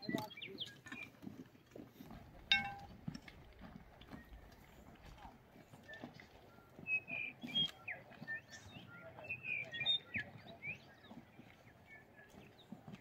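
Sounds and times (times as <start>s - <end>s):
songbird chirping and whistling: 6.6s - 11.1s.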